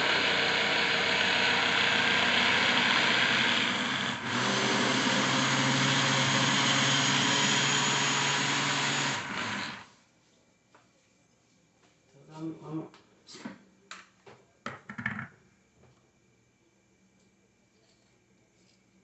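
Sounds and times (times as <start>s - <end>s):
blender motor running: 0.0s - 9.9s.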